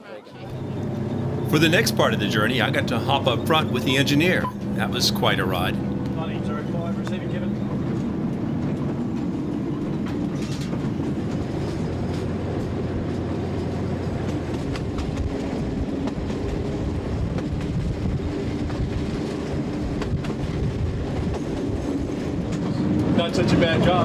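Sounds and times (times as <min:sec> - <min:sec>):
diesel locomotive rumble: 0:00.3 - 0:24.0
wheels clicking over rail joints: 0:06.8 - 0:17.9.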